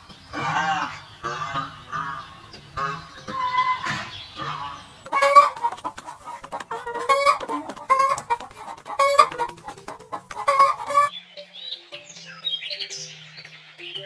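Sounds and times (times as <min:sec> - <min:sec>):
chickens clucking: 0:00.0 - 0:11.1.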